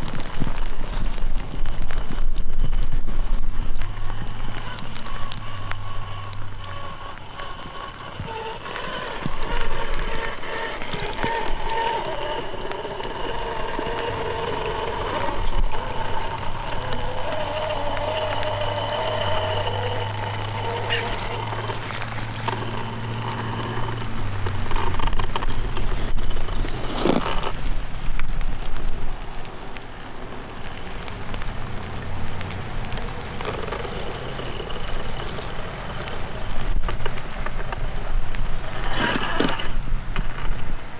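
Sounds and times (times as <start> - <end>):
toy car motor whining: 3.7 - 27.8, 33.4 - 36.2, 38.7 - 40.6.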